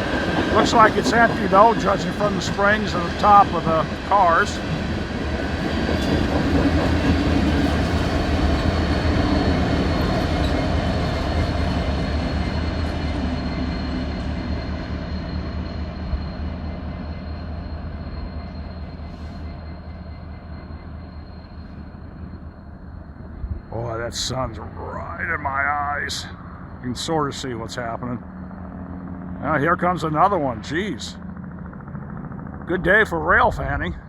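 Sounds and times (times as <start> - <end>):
steady high tones: 0.0 - 31.6
diesel locomotive rumble: 0.0 - 34.0
train running on rails: 0.0 - 34.0.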